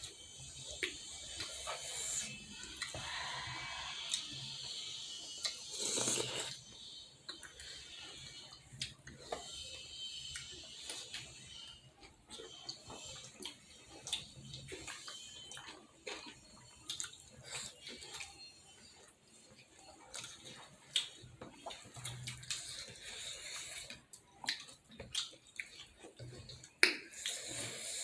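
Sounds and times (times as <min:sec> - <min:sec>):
wet chewing and lip smacks: 0:12.0 - 0:19.1, 0:19.9 - 0:27.7.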